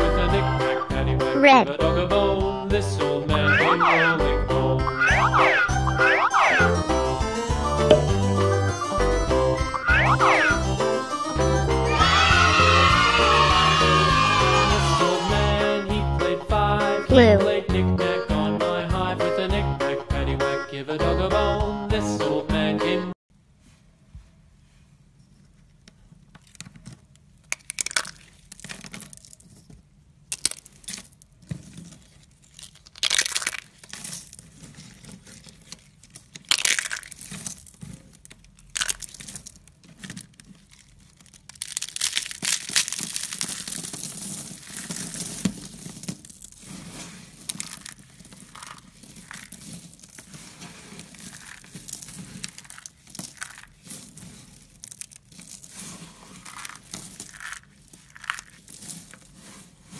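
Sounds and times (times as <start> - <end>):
crinkling handling noises: 25.2 - 59.9
rustling: 30.5 - 59.9.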